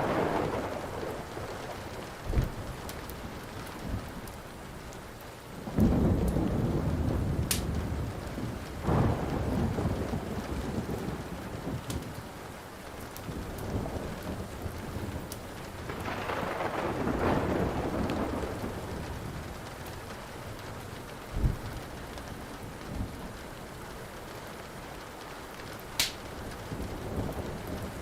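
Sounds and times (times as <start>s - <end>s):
thunder rolling: 0.0s - 4.4s, 5.6s - 12.4s, 13.2s - 23.4s
steady rain: 0.0s - 28.0s
wood fire popping: 7.2s - 7.9s, 11.7s - 12.2s, 25.8s - 26.4s.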